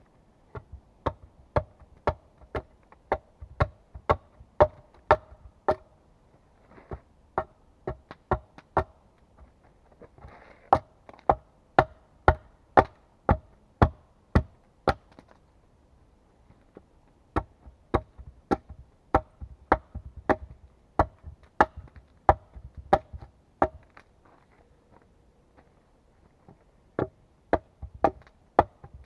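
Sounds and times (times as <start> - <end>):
axe chopping wood: 0.5 - 5.9, 6.9 - 9.0, 10.7 - 15.4, 17.3 - 24.0, 27.0 - 29.0.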